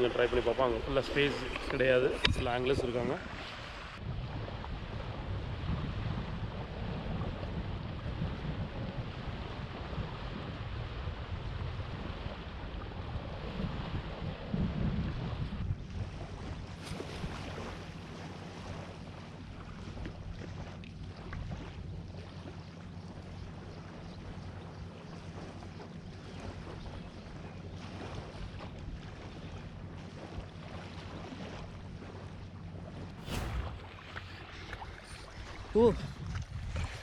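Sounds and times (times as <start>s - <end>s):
wind buffeting microphone: 0.0s - 18.9s, 33.2s - 37.0s
sea waves: 0.0s - 37.0s
loud thump: 33.2s - 34.6s.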